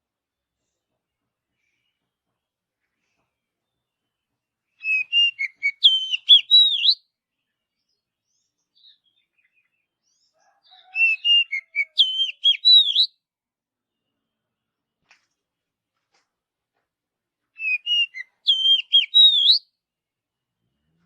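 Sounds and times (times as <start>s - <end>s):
bird whistling song: 4.8s - 7.0s, 10.8s - 13.2s, 17.6s - 19.7s.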